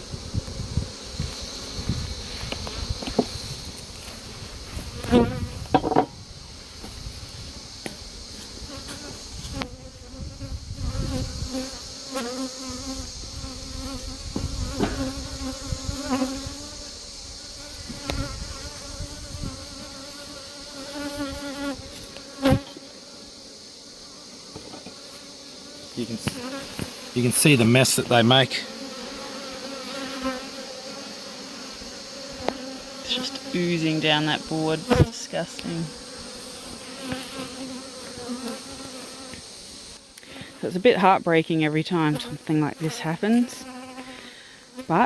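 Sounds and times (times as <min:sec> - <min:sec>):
bees buzzing: 0:00.0 - 0:45.0
sharp knocks: 0:05.7 - 0:06.2.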